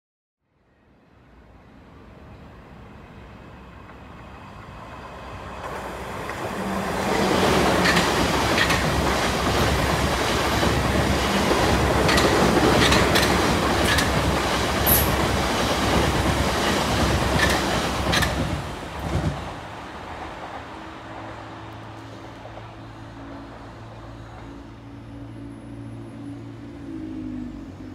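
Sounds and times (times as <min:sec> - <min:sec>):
train passing rumble: 0:00.8 - 0:27.9
sharp clicks of wheels on track: 0:07.6 - 0:15.2.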